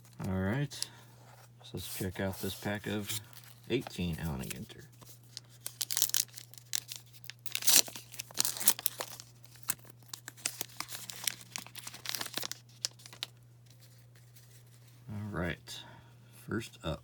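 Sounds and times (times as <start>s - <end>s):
wrapper tearing and crinkling: 2.6s - 13.9s.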